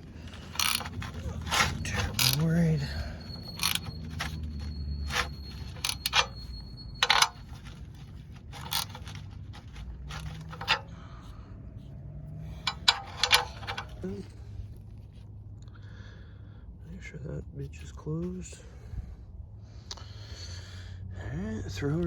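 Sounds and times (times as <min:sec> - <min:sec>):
metal tools clinking and scraping: 0:00.0 - 0:11.0, 0:12.5 - 0:14.3.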